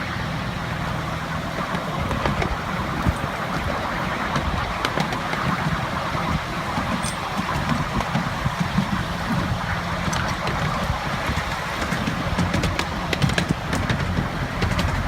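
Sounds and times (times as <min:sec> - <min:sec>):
miniature train rumbling: 0:00.0 - 0:15.0.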